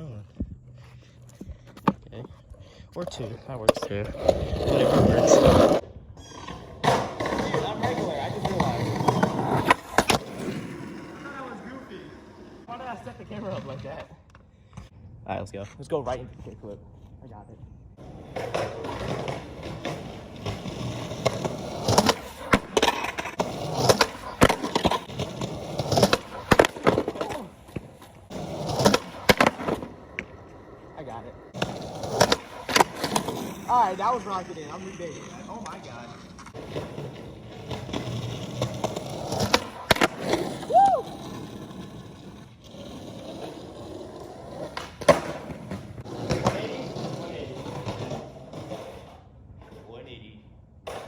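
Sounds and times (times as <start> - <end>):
skateboard wheels rolling: 0.0 - 51.0
skateboard clacking on ground: 1.2 - 2.4, 3.0 - 12.6, 18.0 - 49.9
brief squeak: 6.2 - 6.8.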